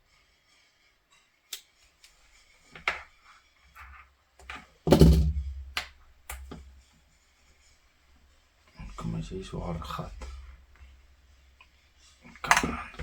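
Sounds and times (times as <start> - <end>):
tools clicking and knocking: 12.4 - 13.0.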